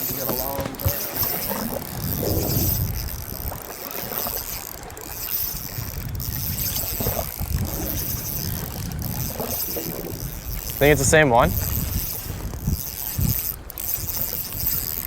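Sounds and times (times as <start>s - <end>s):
waves splashing against hull: 0.0s - 15.0s
wind buffeting microphone: 0.0s - 15.0s.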